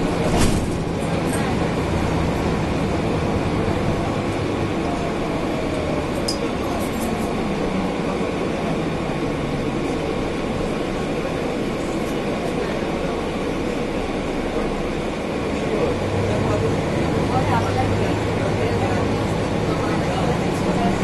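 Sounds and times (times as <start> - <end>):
bus engine and air conditioning drone: 0.0 - 21.0.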